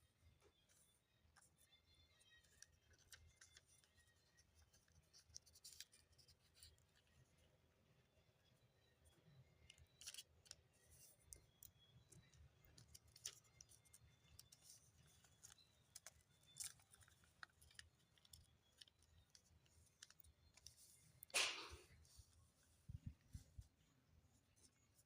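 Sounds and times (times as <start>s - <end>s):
paper rustling and clicking: 2.3s - 7.0s, 9.6s - 22.1s.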